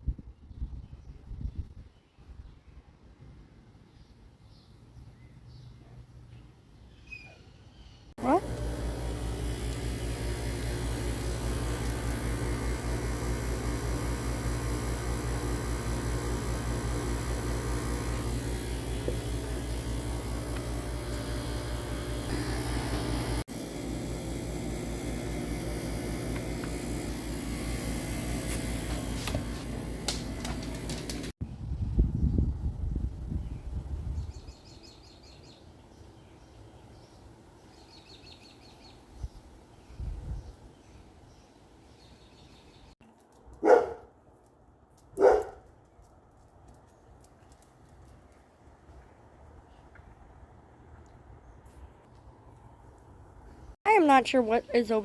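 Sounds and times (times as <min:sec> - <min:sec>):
low machine hum with throb: 0:08.2 - 0:33.9.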